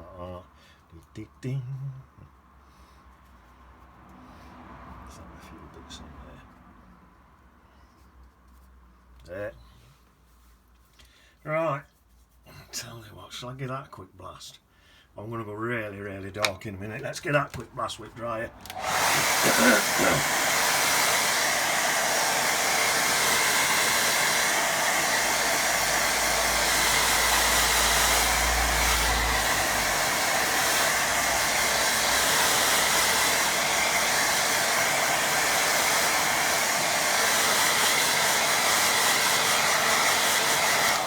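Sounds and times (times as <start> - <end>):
hair dryer blowing: 18.6 - 41.0.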